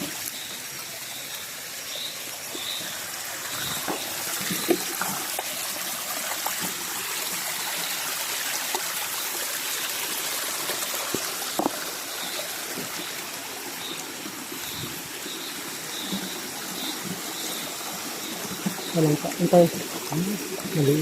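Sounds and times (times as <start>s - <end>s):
stream flowing and trickling: 0.0s - 21.0s
knocks or splashes: 3.5s - 7.0s, 10.6s - 12.0s.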